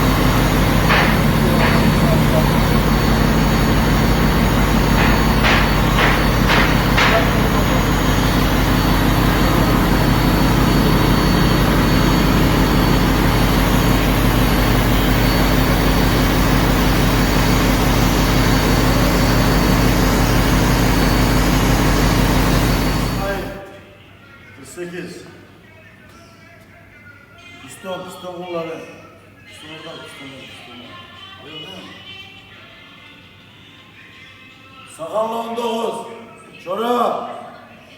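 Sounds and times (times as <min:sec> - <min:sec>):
marine diesel engine roar: 0:00.0 - 0:23.6
short knocks: 0:00.4 - 0:08.2.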